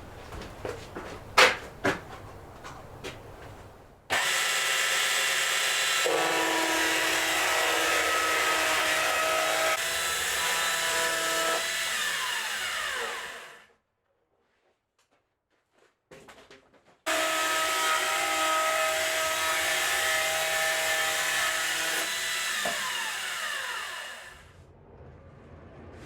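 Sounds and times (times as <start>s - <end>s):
sawmill saw running: 4.1s - 13.6s, 17.1s - 24.5s.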